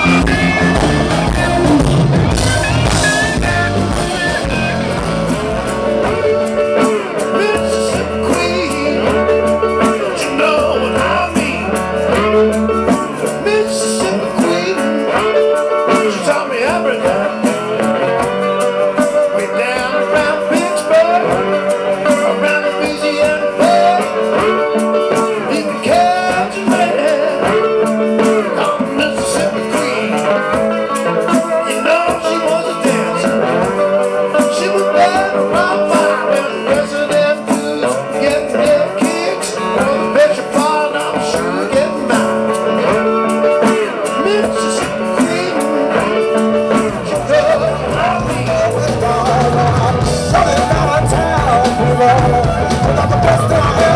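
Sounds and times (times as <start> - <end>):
electric guitar lines: 0.0 - 53.9
live blues band playing: 0.0 - 53.9
steady drum beat: 0.0 - 53.9.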